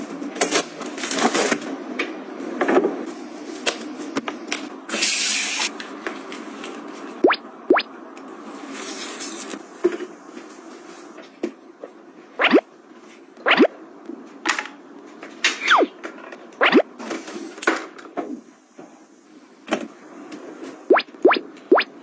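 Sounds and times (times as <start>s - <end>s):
rising bloop pops: 7.2s - 7.9s, 12.4s - 12.6s, 13.5s - 13.7s, 15.6s - 15.9s, 16.6s - 16.8s, 20.9s - 22.0s.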